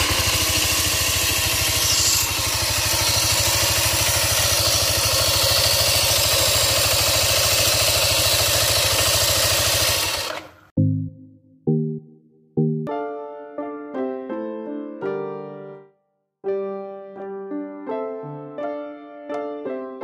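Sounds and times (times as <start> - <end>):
rough mechanical noise: 0.0 - 10.7
scooter engine idling: 0.0 - 10.7.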